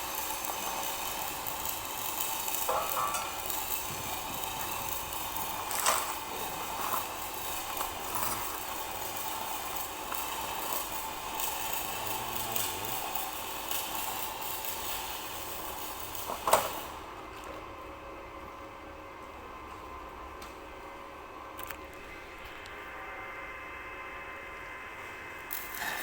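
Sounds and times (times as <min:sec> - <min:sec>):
welding arc snapping: 0:00.0 - 0:17.0, 0:25.5 - 0:26.0
welding arc crackling: 0:00.0 - 0:17.1, 0:25.4 - 0:26.0.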